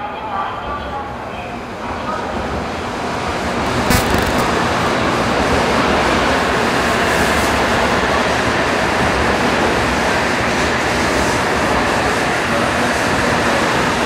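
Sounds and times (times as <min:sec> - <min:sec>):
high-speed train slowing: 0:04.5 - 0:14.0.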